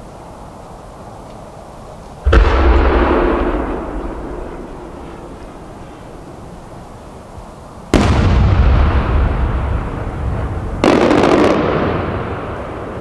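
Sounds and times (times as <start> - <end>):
firework shell booms: 2.2 - 6.4, 8.0 - 12.9
firework crackle: 2.2 - 13.0
low rolling echo: 2.2 - 13.0.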